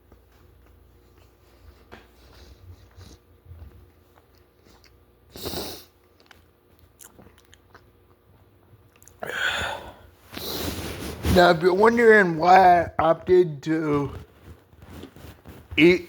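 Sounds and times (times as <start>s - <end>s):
chewing and biting food: 0.2s - 9.2s.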